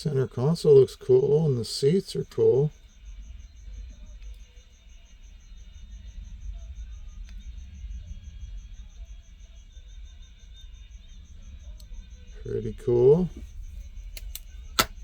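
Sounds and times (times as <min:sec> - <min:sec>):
faint insect chirping: 0:00.0 - 0:15.0
light clicks: 0:14.1 - 0:15.0.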